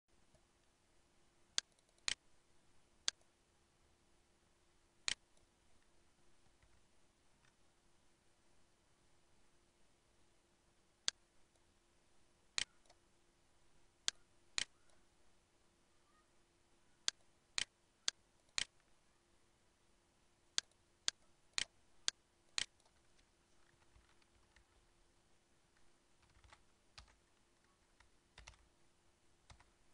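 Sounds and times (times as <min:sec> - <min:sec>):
faint steady hum: 0:00.1 - 0:29.9
computer mouse clicking: 0:01.6 - 0:02.2, 0:12.6 - 0:13.0, 0:14.1 - 0:15.0, 0:17.0 - 0:18.9, 0:20.6 - 0:24.8, 0:25.8 - 0:28.7, 0:29.5 - 0:29.8.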